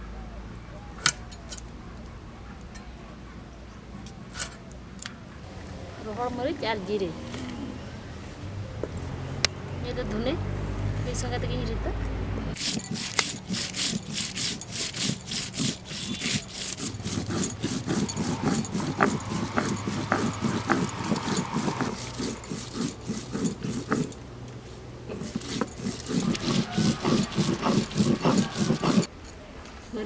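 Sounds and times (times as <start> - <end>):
stone roller scraping grinding stone: 12.5 - 24.2, 25.1 - 29.1.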